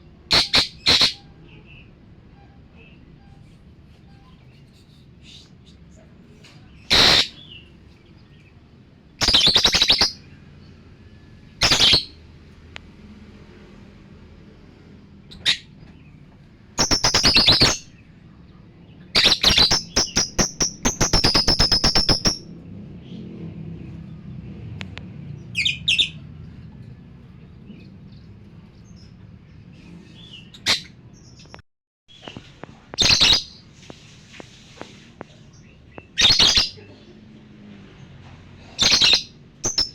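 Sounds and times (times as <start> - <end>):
lovebird chirping: 6.7 - 7.7, 9.2 - 10.7, 11.6 - 12.2, 16.8 - 18.0, 19.1 - 22.5, 30.2 - 33.7, 35.6 - 36.9, 38.8 - 39.9.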